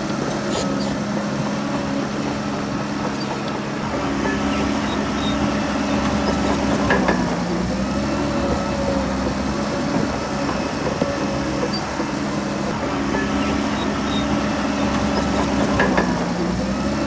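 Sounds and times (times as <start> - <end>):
heavy diesel engine running: 0.0 - 17.0
short metallic knocks: 4.2 - 7.5, 13.2 - 16.6.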